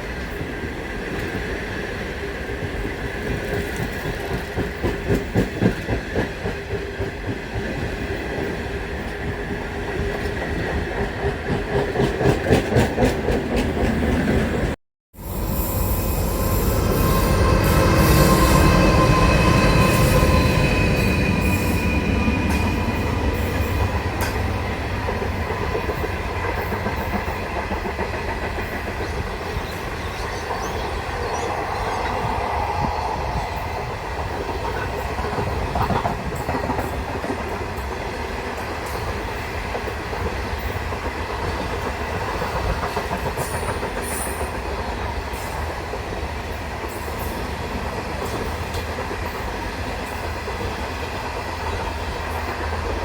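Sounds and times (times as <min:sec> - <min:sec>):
train wheels rumbling on track: 0:00.0 - 0:53.0
high ringing wheel squeal: 0:15.2 - 0:23.9.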